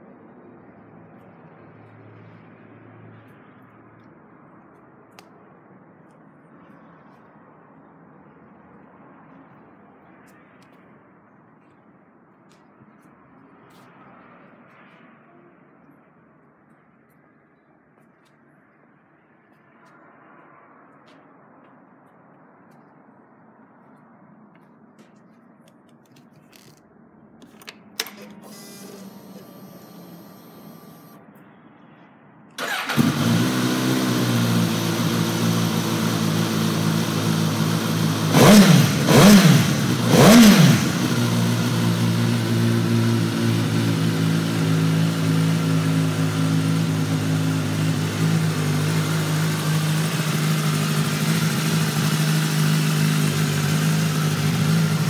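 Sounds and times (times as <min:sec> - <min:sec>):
motorcycle engine starting and idling: 0:27.4 - 0:31.2, 0:32.6 - 0:55.0.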